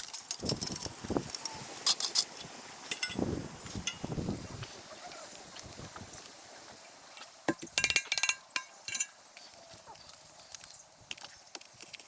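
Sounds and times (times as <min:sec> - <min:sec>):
hard objects clinking together: 0:07.5 - 0:09.2.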